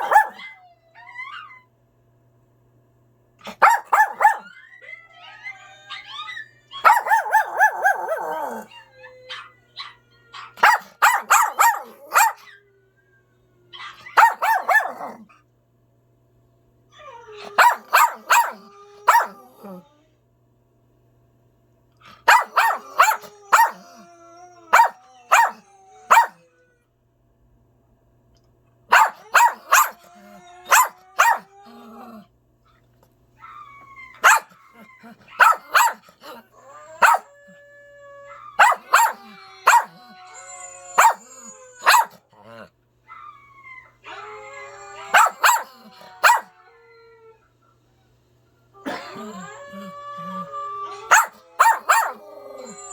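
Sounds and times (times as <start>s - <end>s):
dog barking: 0.0s - 0.6s, 3.5s - 4.6s, 6.8s - 8.7s, 10.6s - 12.5s, 13.8s - 15.2s, 17.5s - 19.4s, 22.2s - 23.9s, 24.7s - 26.4s, 28.9s - 31.5s, 34.2s - 34.6s, 35.3s - 36.4s, 37.0s - 37.3s, 38.6s - 40.0s, 41.0s - 42.6s, 45.1s - 46.5s, 51.1s - 52.2s.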